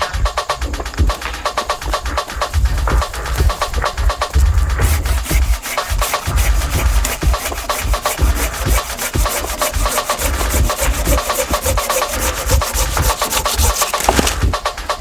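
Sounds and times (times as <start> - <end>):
saw cutting a branch: 4.4 - 14.6.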